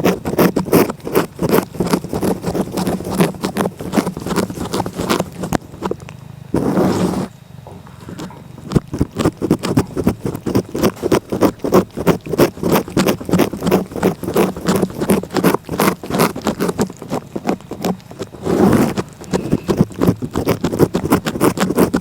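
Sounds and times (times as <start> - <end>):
cat licking: 0.0 - 7.3, 8.0 - 22.0
short rustle: 6.6 - 7.3, 18.3 - 19.9.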